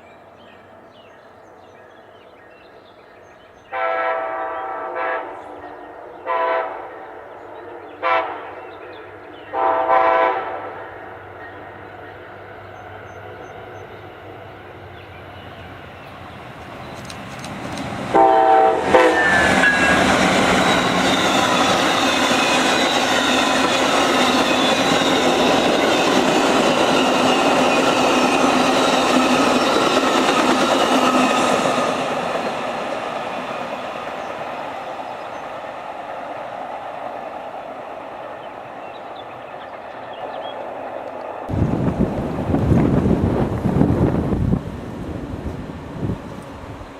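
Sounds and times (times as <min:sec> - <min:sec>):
train horn blast: 0:03.7 - 0:08.8, 0:09.5 - 0:11.2, 0:18.1 - 0:21.9
train wheels on rails: 0:10.8 - 0:46.9.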